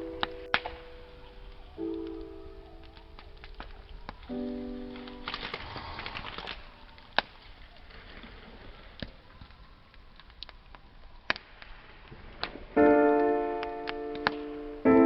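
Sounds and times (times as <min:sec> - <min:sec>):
piano chord: 0:00.0 - 0:07.2, 0:12.8 - 0:15.0
wood fire crackling: 0:00.0 - 0:15.0.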